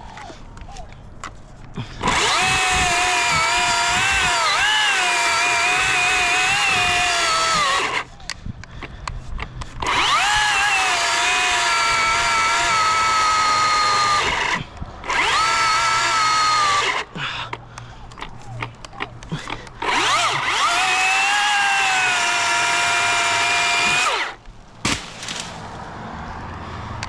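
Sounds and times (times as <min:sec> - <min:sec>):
chainsaw cutting wood: 0:01.8 - 0:08.1, 0:09.7 - 0:17.2, 0:18.6 - 0:25.7.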